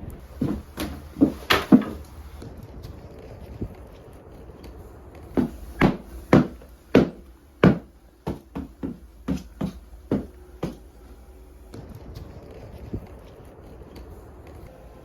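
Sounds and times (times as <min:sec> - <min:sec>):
sharp knocks: 0:00.4 - 0:02.1, 0:05.4 - 0:11.0.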